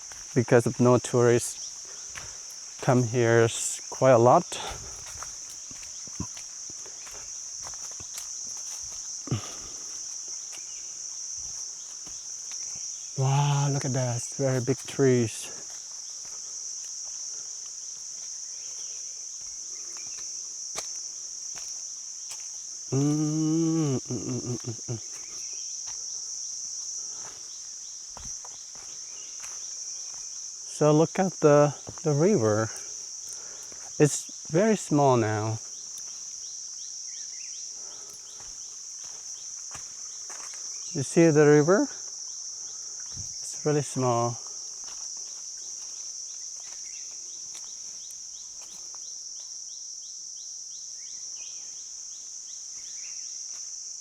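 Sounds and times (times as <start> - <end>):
insects buzzing: 0.0 - 54.0
human voice: 9.3 - 9.7, 22.9 - 25.1.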